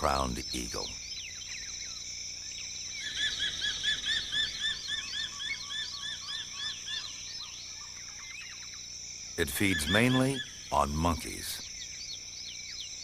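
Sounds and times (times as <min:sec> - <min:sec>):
forest insects droning: 0:00.0 - 0:13.0
eagle whistled calls: 0:09.4 - 0:10.7.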